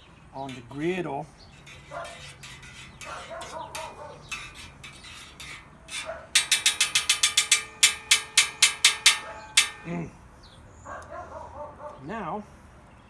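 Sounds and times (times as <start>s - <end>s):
sharp metallic clicks: 1.6s - 10.0s.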